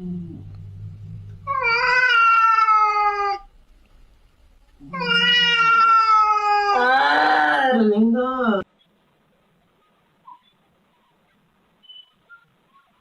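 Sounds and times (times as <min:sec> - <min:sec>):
faint low hum: 0:00.0 - 0:13.0
cat meowing: 0:01.5 - 0:03.5, 0:04.8 - 0:07.8.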